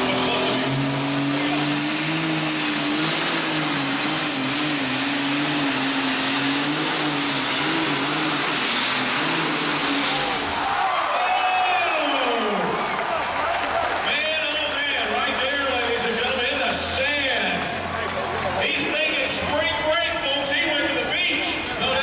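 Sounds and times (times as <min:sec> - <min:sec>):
pulling tractor engine with whine: 0:00.0 - 0:10.6.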